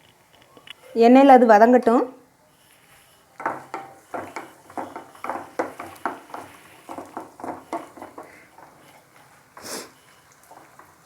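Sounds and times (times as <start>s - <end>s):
shallots sauteing in oil: 1.3s - 11.0s
spatula scraping a pan: 2.5s - 11.0s.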